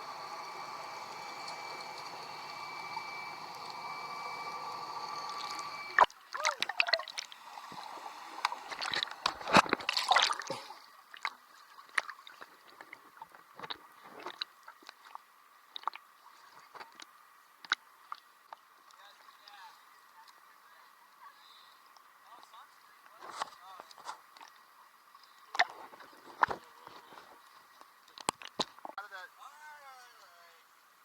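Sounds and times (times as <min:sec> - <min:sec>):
steady hum: 0:00.0 - 0:06.1, 0:07.0 - 0:10.8
water splashing and sloshing: 0:05.9 - 0:19.0.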